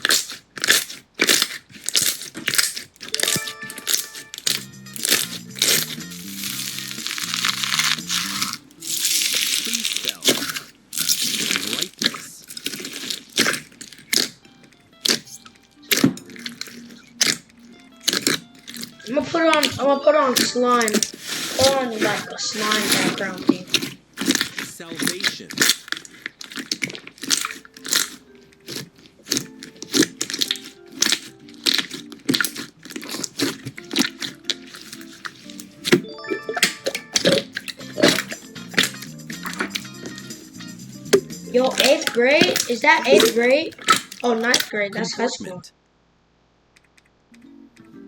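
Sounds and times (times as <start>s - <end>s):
short crisp crunching: 0.0s - 19.0s
crunchy slime crackling: 0.0s - 36.0s, 37.2s - 40.5s, 41.1s - 44.8s
faint music: 0.2s - 45.8s, 47.2s - 48.0s.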